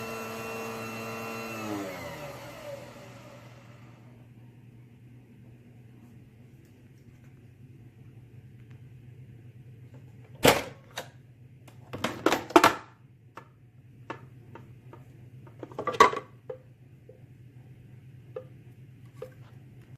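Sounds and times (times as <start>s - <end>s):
steady low hum: 2.2s - 11.9s.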